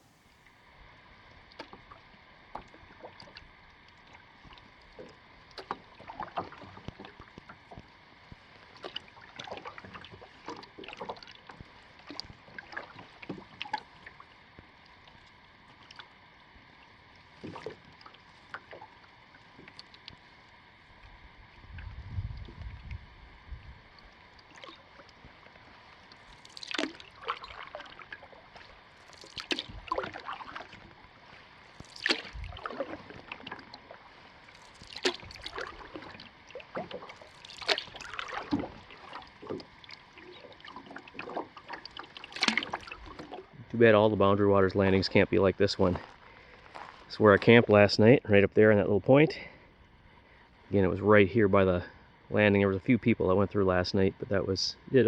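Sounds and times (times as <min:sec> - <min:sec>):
paddle splashing water: 0:00.0 - 0:47.8
low rumble: 0:21.6 - 0:24.0.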